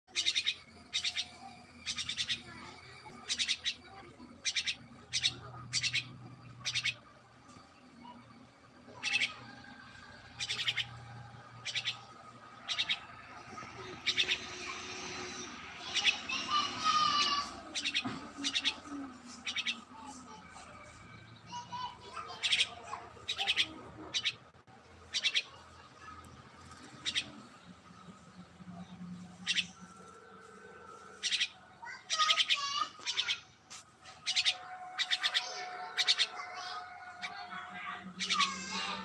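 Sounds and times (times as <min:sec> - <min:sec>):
bird giving harsh raspy calls: 0:00.1 - 0:02.5, 0:03.2 - 0:03.8, 0:04.4 - 0:07.0, 0:08.9 - 0:09.5, 0:10.3 - 0:11.0, 0:11.6 - 0:15.2, 0:15.8 - 0:18.8, 0:21.6 - 0:24.4, 0:25.1 - 0:25.6, 0:29.4 - 0:29.8, 0:31.2 - 0:33.5, 0:34.2 - 0:37.4
bird chattering and whistling: 0:00.1 - 0:07.0, 0:08.9 - 0:09.6, 0:10.2 - 0:26.2, 0:26.8 - 0:27.6, 0:28.2 - 0:30.0, 0:31.2 - 0:33.5, 0:34.1 - 0:37.5.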